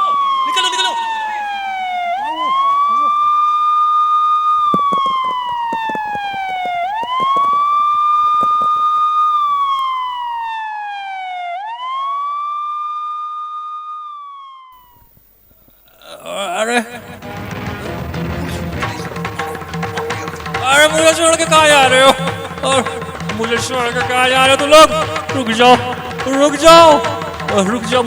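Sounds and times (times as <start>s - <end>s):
police siren wailing: 0.0s - 14.8s
clattering knocks: 4.7s - 9.1s.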